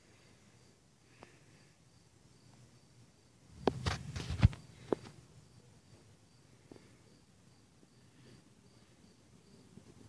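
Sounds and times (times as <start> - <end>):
faint insect chirping: 0.0 - 10.0.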